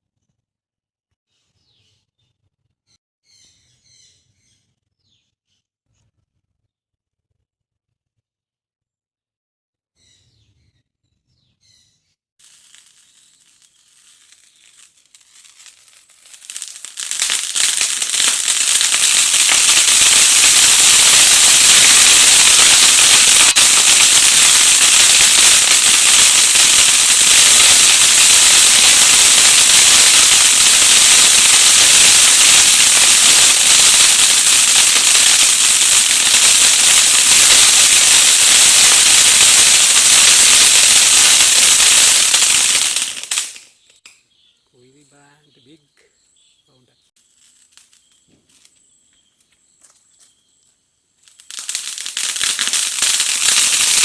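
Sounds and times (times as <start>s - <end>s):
firework fountain crackling and hissing: 12.4s - 43.8s, 47.2s - 48.7s, 51.2s - 54.0s.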